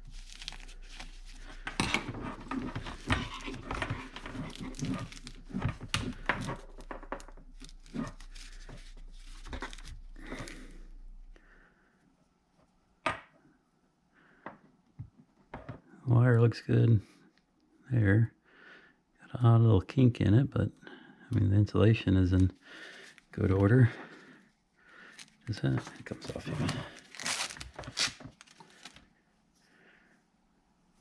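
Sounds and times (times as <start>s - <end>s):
plastic and wire rustling: 0.0s - 11.4s, 25.0s - 29.1s.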